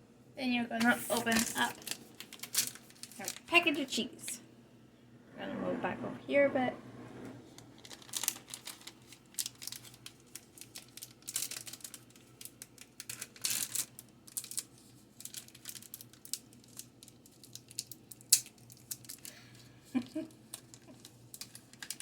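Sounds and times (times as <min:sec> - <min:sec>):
wrapper crinkling and tearing: 0:00.8 - 0:03.7, 0:07.6 - 0:19.4, 0:20.5 - 0:22.0.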